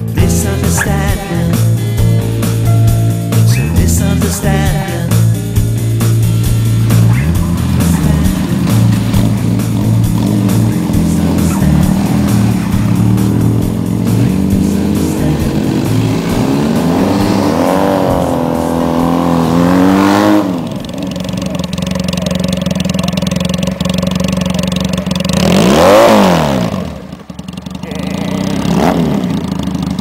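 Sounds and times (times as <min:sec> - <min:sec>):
background music: 0:00.0 - 0:20.8
motorcycle engine revving: 0:00.0 - 0:30.0.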